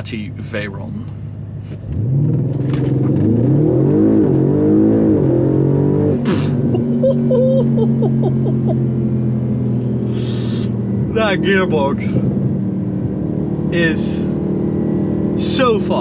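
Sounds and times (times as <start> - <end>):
car engine accelerating hard: 1.7 - 16.0.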